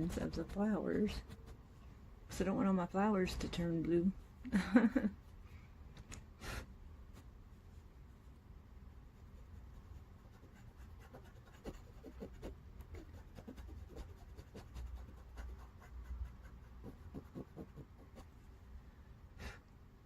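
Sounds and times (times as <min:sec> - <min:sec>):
coloring tool scratching paper: 0:00.0 - 0:01.6, 0:09.2 - 0:18.4
low steady hum: 0:00.0 - 0:20.0.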